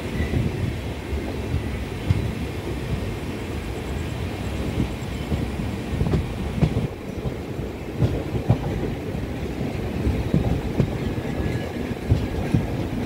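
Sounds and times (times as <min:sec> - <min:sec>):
train coaches rumbling past: 0:00.0 - 0:13.0
wheels clacking over rail joints: 0:04.7 - 0:13.0.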